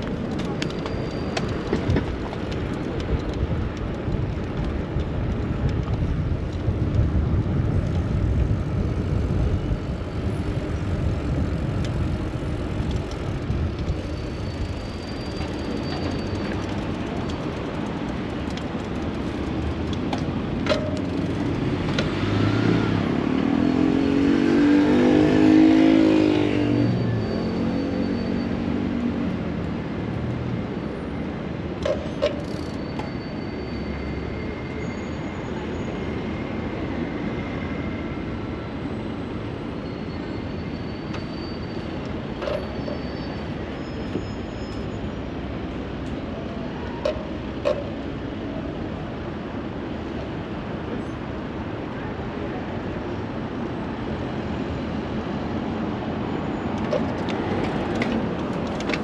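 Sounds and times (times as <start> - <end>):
city street traffic: 0.0 - 59.0.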